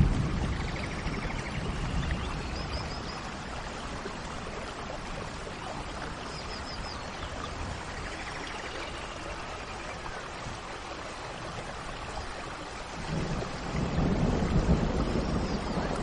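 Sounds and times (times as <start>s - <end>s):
thunder rumble: 0.0s - 4.0s, 12.9s - 16.0s
steady rain: 0.0s - 16.0s.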